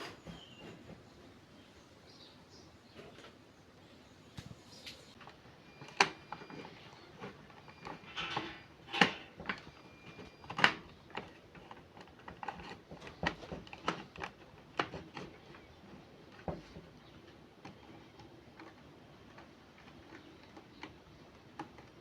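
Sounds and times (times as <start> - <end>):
hard objects clicking and knocking: 5.2 - 22.0.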